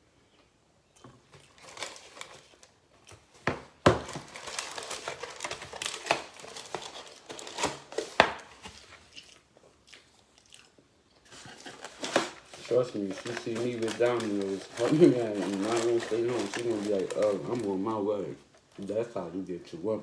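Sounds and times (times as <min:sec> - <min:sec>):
food crunching: 0:00.9 - 0:19.2
packaging crinkling: 0:01.2 - 0:09.4, 0:11.2 - 0:19.3.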